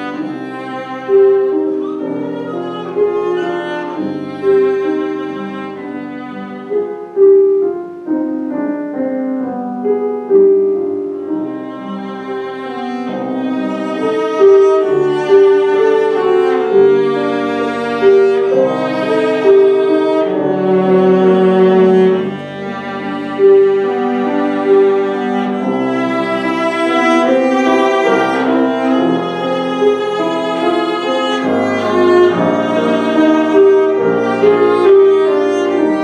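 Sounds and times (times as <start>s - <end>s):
cello playing classical melody: 0.0s - 36.0s
piano accompaniment: 0.0s - 36.0s.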